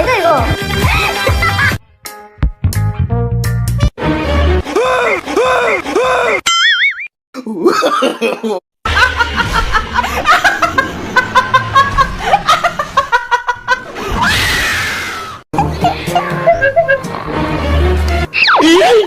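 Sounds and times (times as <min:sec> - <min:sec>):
person laughing: 0:00.8 - 0:01.8, 0:04.6 - 0:06.4, 0:07.4 - 0:14.1, 0:15.6 - 0:17.2.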